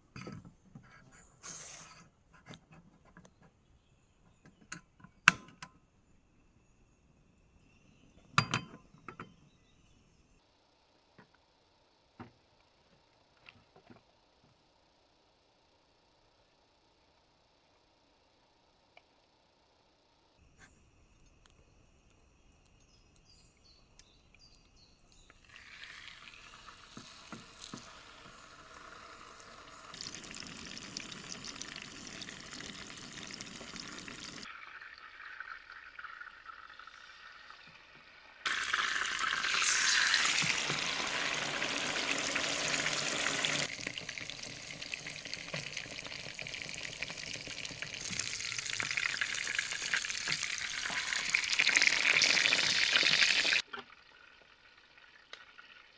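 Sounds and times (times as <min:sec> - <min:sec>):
food sizzling in a pan: 0:25.4 - 0:53.6.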